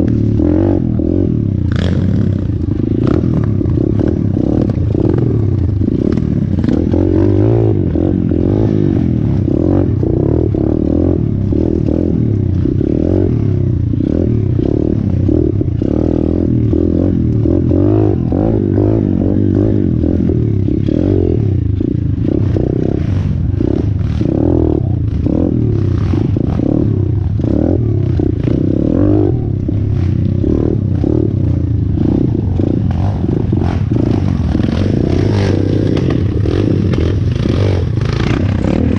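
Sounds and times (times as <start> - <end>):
motorbike engine revving: 0.0 - 38.9
bike rattling over rough ground: 19.9 - 38.9.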